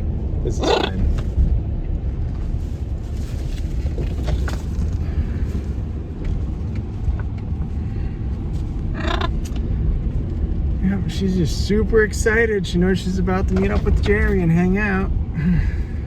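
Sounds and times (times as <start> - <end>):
car cabin road and engine noise: 0.0 - 16.0
macaw squawk: 8.9 - 9.4.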